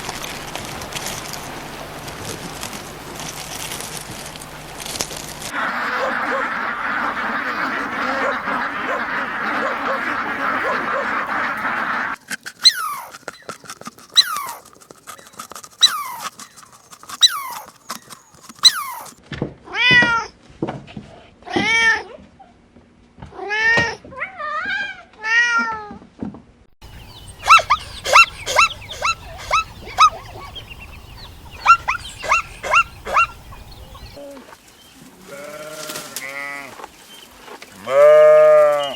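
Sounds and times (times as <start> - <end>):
steady noisy hiss: 0.0 - 7.7, 26.8 - 34.8
quick high chirps: 27.0 - 34.2.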